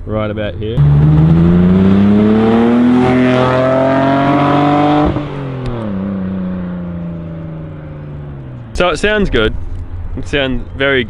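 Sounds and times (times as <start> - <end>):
turbocharged car engine accelerating: 0.8 - 9.2.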